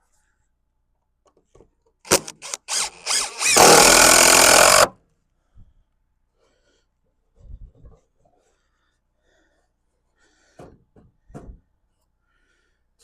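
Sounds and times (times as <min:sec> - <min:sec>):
electric circular saw running: 0:02.1 - 0:04.9.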